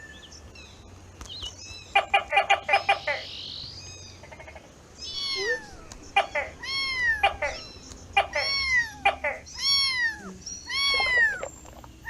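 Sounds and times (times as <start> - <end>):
falling meow-like call: 5.0 - 11.5
gecko chirping clicks: 5.2 - 9.6.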